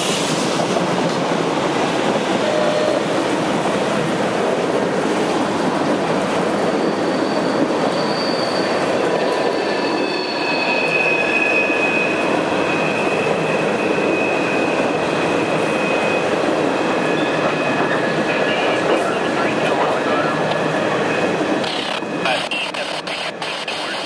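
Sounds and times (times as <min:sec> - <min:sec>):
train wheels rolling on rail: 0:00.0 - 0:24.0
high wheel squeal: 0:06.6 - 0:14.8.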